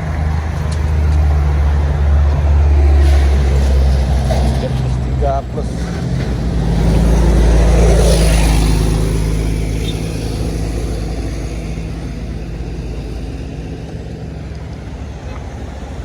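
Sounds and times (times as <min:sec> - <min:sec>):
bus driving past: 0:00.0 - 0:16.0.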